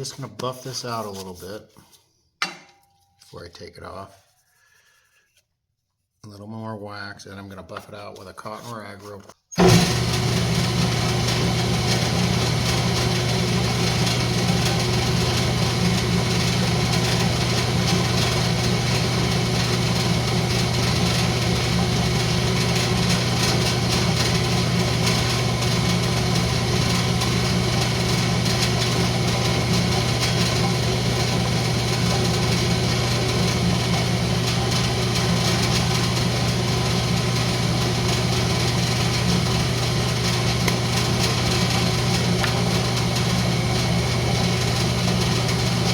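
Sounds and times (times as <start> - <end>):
wood lathe humming: 9.6 - 45.9.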